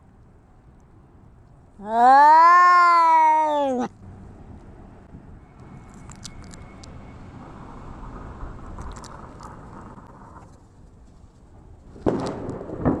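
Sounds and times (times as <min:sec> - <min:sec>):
cats growling: 0:01.8 - 0:03.9
cats screeching outburst: 0:01.8 - 0:03.9.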